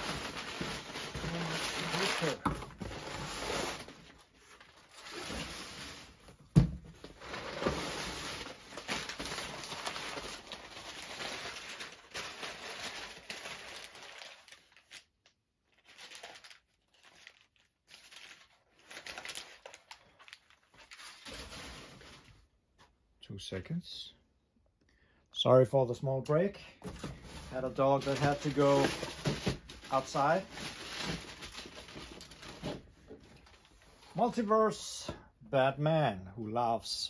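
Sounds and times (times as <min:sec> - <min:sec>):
packaging crinkling and tearing: 0:00.0 - 0:05.9, 0:07.1 - 0:22.3, 0:27.3 - 0:32.8.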